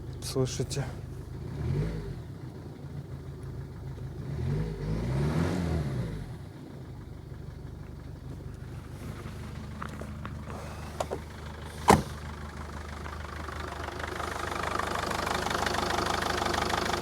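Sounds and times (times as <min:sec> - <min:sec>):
diesel engine idling and revving: 0:00.0 - 0:17.0.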